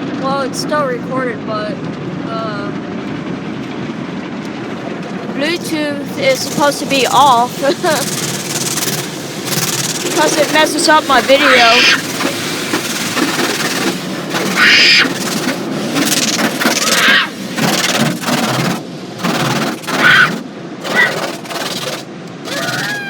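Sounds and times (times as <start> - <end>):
car wash spray and beating: 5.4 - 23.0.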